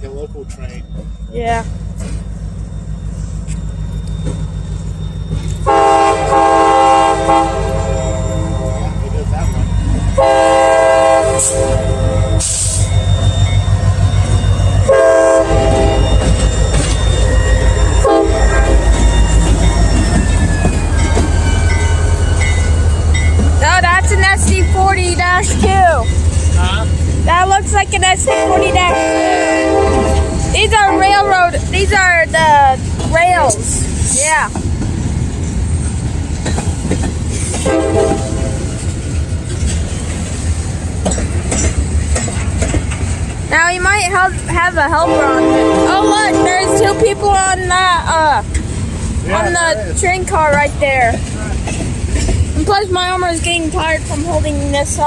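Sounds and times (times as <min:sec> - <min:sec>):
diesel engine low rumble: 0:00.0 - 0:55.0
locomotive air horn blasts: 0:05.6 - 0:08.8, 0:10.2 - 0:12.8, 0:14.8 - 0:16.2, 0:18.0 - 0:18.8, 0:28.2 - 0:31.6, 0:37.6 - 0:38.7, 0:45.0 - 0:47.5.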